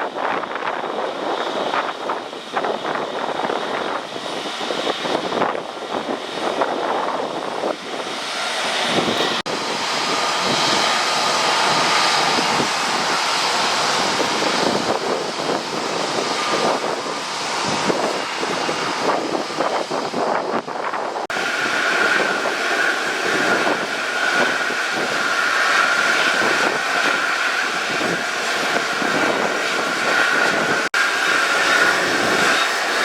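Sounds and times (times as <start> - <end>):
jet engine noise: 0.0 - 33.0
wind buffeting microphone: 0.0 - 33.0.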